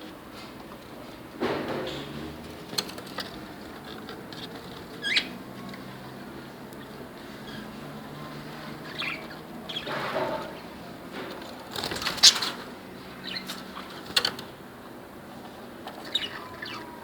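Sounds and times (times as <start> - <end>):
wing flapping and rustling: 1.7 - 7.4, 9.8 - 14.8
budgerigars chirping: 4.9 - 5.4, 8.7 - 10.6, 11.9 - 14.0, 15.9 - 17.0.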